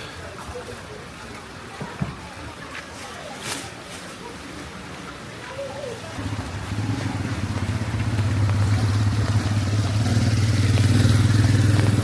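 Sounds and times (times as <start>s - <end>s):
motorcycle engine approaching: 6.2s - 12.0s.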